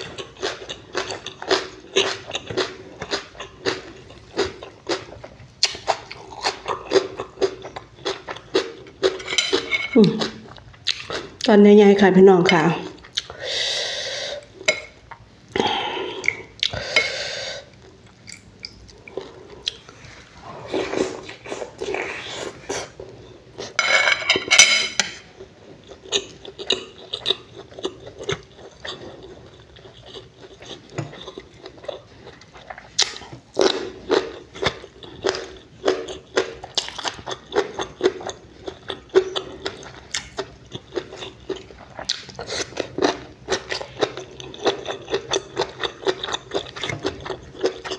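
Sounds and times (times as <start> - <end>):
person chewing with wet smacks: 0.0 - 9.2, 10.2 - 11.5, 12.9 - 13.4, 16.2 - 16.8, 17.8 - 20.0, 25.8 - 47.9.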